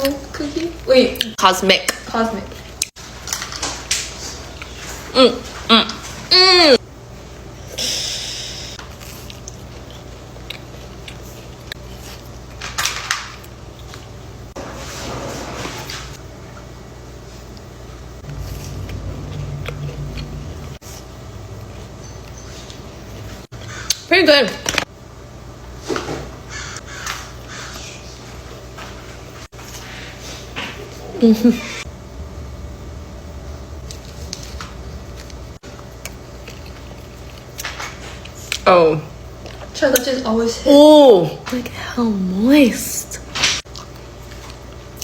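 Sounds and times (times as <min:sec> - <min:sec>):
steady low hum: 0:00.0 - 0:45.0
person chewing a cookie: 0:08.8 - 0:12.6, 0:17.6 - 0:24.0, 0:33.8 - 0:38.6, 0:43.7 - 0:45.0.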